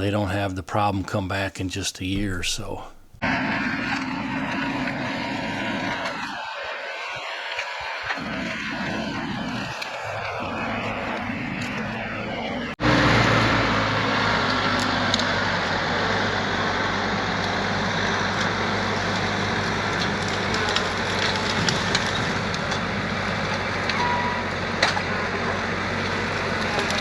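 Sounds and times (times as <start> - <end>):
excavator diesel engine running: 12.8 - 27.0.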